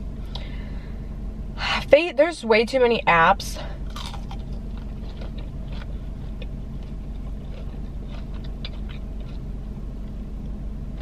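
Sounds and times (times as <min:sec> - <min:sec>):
low hum inside car: 0:00.0 - 0:11.0
chewing mouth sounds: 0:03.9 - 0:10.2.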